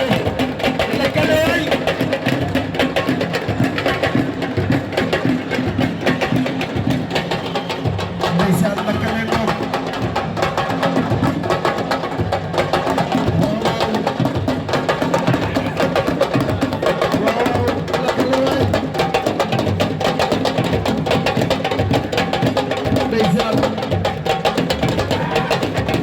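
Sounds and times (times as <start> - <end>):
drums played fast: 0.0 - 26.0.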